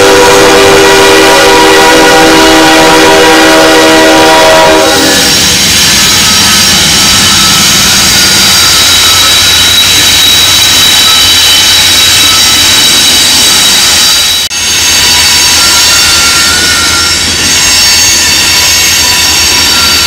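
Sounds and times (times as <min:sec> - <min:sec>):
locomotive air horn: 0:00.0 - 0:05.4
high-pitched wheel squeal: 0:04.8 - 0:20.0.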